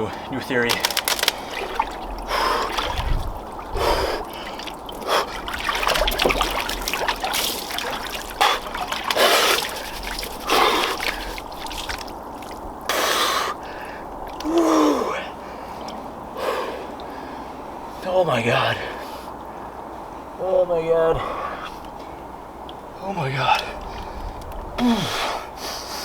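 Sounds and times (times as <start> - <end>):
water sloshing and splashing: 0.0 - 18.0, 22.8 - 25.3.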